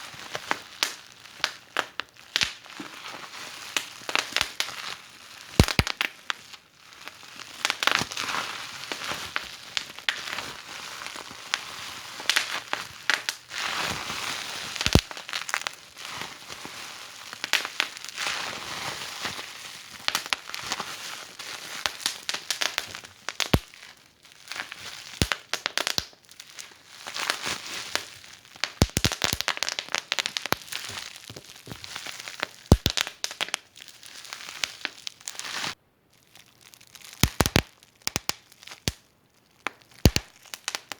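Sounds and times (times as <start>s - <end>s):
fireplace fire crackling: 5.6s - 6.2s, 14.8s - 15.7s, 25.0s - 26.2s, 27.2s - 35.0s, 37.2s - 39.0s, 40.0s - 40.9s.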